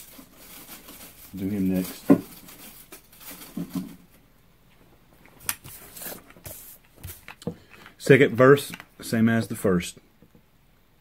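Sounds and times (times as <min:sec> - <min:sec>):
hands handling objects: 0:05.2 - 0:09.0.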